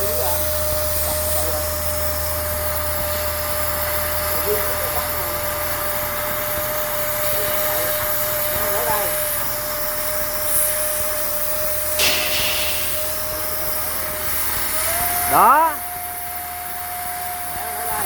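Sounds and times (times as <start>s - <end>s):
plasma cutter hissing: 11.9s - 14.8s
low hum: 12.0s - 14.0s
high-pitched whine: 12.0s - 14.3s.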